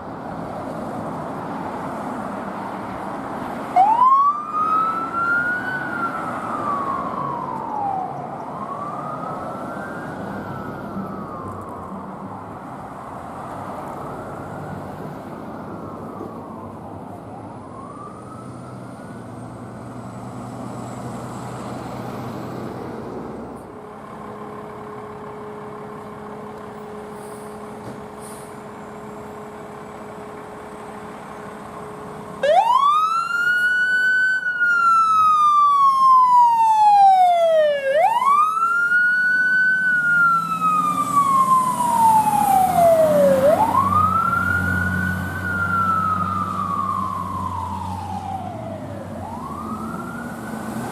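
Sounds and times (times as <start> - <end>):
heavy vehicle engine rumble: 0.0 - 32.4, 38.0 - 50.9
road traffic noise: 0.0 - 50.9
emergency siren wailing: 1.7 - 22.8, 28.9 - 50.9.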